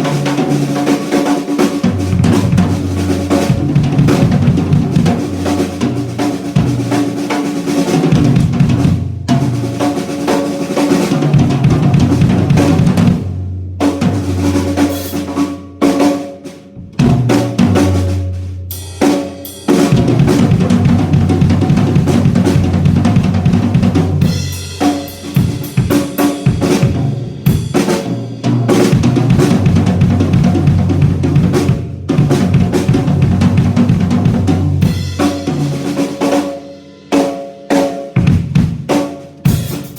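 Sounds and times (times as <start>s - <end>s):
drum kit playing: 0.0s - 39.9s
bass drum kick: 20.0s - 27.8s, 28.5s - 35.2s.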